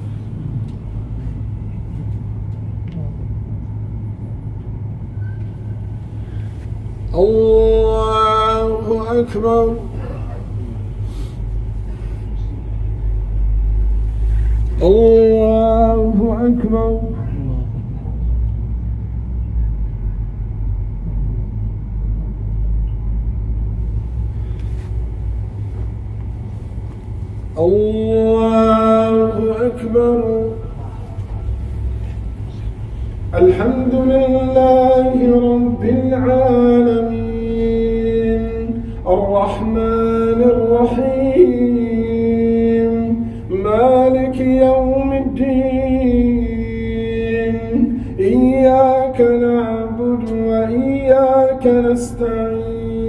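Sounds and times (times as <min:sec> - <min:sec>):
low background hum: 0:00.0 - 0:53.0
soft rustle: 0:24.0 - 0:27.6.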